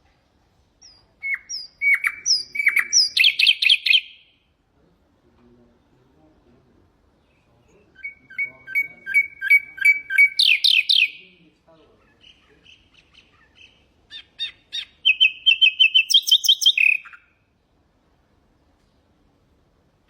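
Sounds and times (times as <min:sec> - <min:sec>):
nightingale singing trills: 0:00.8 - 0:04.5, 0:07.2 - 0:17.6.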